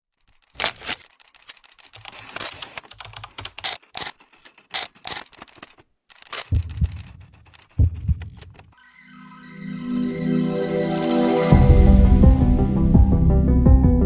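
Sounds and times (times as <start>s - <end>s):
sharp clicks and clacks: 0.2s - 8.8s
music: 8.8s - 14.0s.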